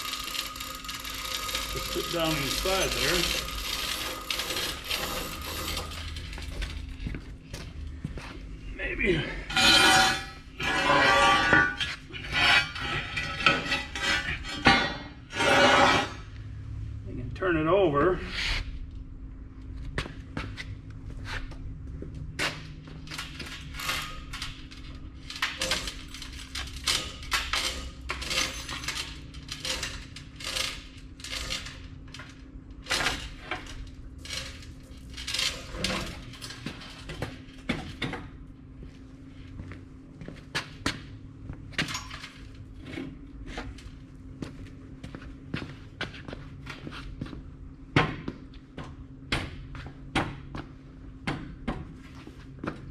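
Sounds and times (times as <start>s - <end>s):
steel clanking and scraping: 0.0s - 7.2s, 9.1s - 16.4s, 22.4s - 38.3s
steady low hum: 0.0s - 52.9s.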